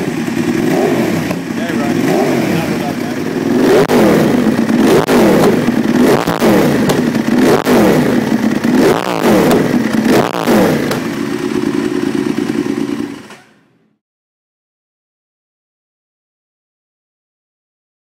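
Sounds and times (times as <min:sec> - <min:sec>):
exhaust cracks: 0:00.0 - 0:13.6
motorcycle engine revving: 0:00.0 - 0:14.0.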